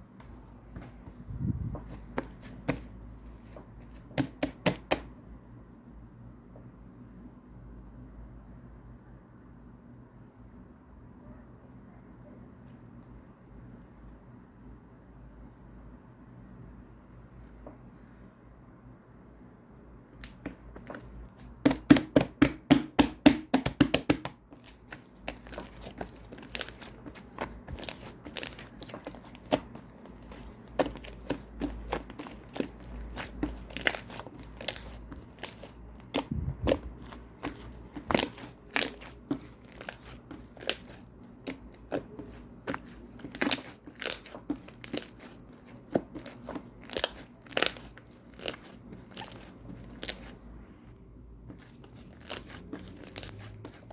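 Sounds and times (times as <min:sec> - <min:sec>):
crinkly material tearing: 0:24.6 - 0:50.4, 0:51.6 - 0:53.9.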